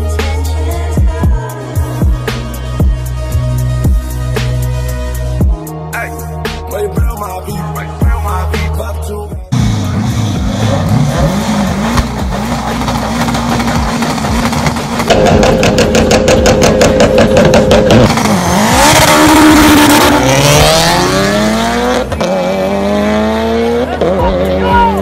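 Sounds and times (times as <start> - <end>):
car engines revving: 9.5 - 25.0.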